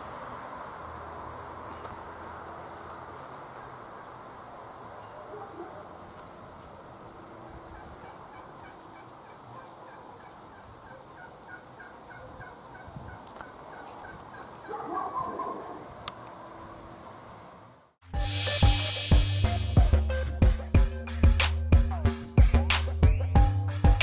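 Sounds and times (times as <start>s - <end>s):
birds calling: 1.7s - 16.0s.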